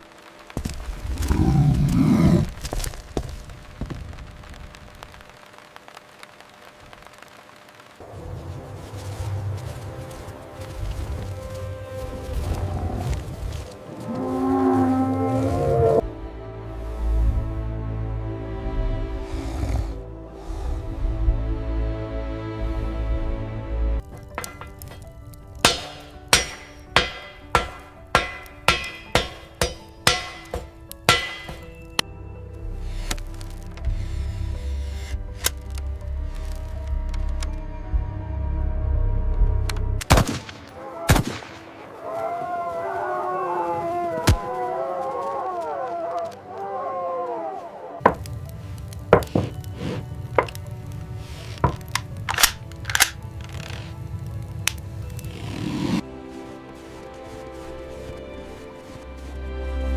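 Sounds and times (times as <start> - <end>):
background music: 8.0 - 59.9
wavering howl: 10.9 - 16.2, 40.7 - 48.2
sharp ringing knocks: 25.7 - 31.8.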